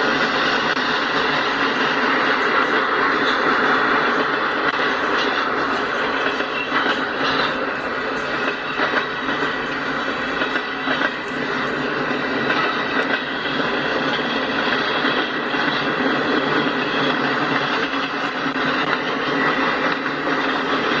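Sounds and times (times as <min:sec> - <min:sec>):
freight train wheels rumbling on rail: 0:00.0 - 0:21.0.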